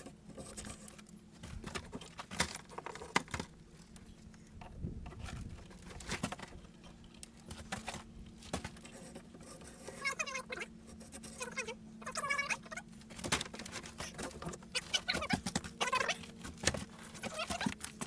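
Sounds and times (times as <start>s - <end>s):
timber and tools clattering: 13.0s - 18.0s.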